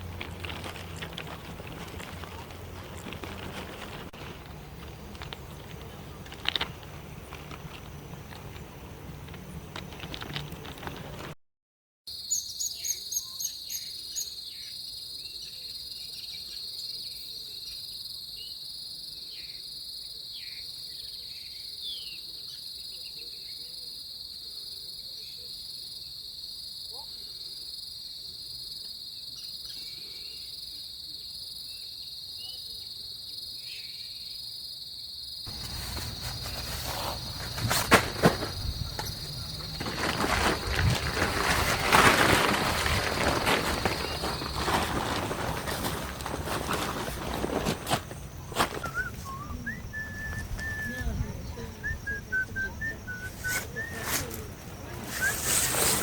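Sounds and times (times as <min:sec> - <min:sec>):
loud rustling: 0:00.0 - 0:11.3, 0:35.5 - 0:49.1, 0:53.3 - 0:56.0
high-pitched insect chorus: 0:12.1 - 0:45.2, 0:47.8 - 0:56.0.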